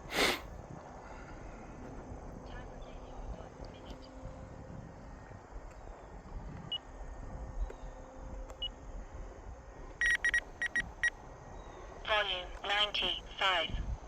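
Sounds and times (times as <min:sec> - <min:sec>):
wind rumble on microphone: 0:00.0 - 0:14.0
transmitter short beeps: 0:10.0 - 0:11.1.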